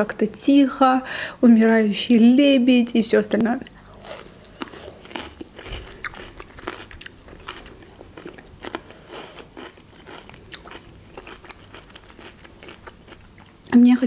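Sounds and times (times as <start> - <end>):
person chewing food: 3.8 - 13.7.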